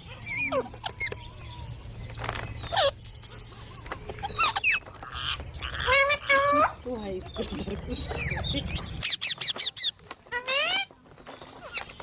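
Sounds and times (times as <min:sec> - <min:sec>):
parrot calling: 0:00.0 - 0:01.6, 0:02.6 - 0:07.3, 0:08.0 - 0:11.0
high repeated parrot chirps: 0:08.2 - 0:10.9.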